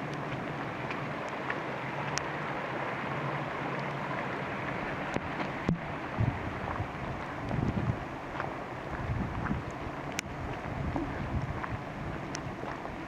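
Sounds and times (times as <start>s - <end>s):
steady rain in a forest: 0.0s - 13.0s
water drips: 0.0s - 13.0s
wind buffeting the microphone: 4.8s - 13.0s.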